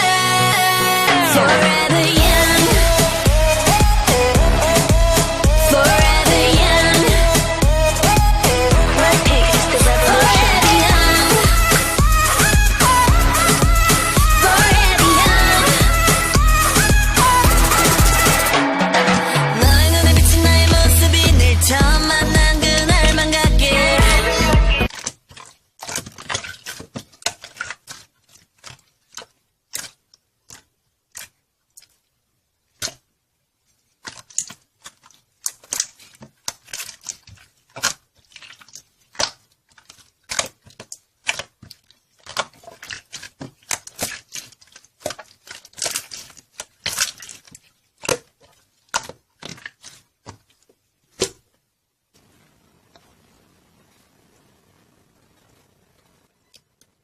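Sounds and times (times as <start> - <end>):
slime popping and crackling: 24.9 - 32.0, 34.0 - 51.4.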